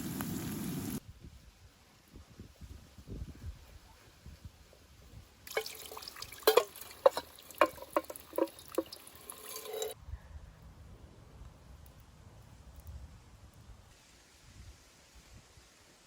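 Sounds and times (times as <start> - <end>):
water dripping and splashing: 5.5 - 10.0.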